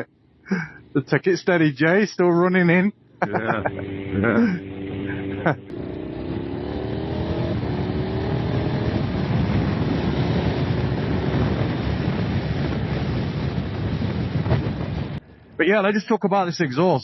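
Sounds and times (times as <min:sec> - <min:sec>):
wind and road noise: 0:00.0 - 0:17.0
motorcycle engine accelerating: 0:03.2 - 0:15.2.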